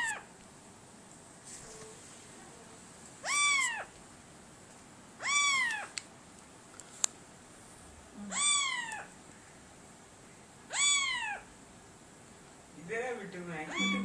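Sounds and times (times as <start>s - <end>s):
cat meowing: 0.0s - 0.2s, 3.2s - 3.9s, 5.2s - 5.9s, 8.3s - 9.1s, 10.7s - 11.5s, 13.7s - 14.0s.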